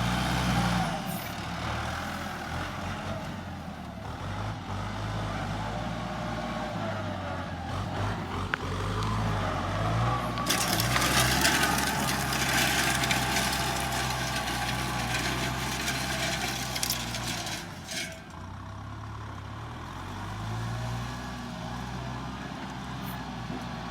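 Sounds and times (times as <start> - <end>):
tractor engine idling: 10.2 - 18.9.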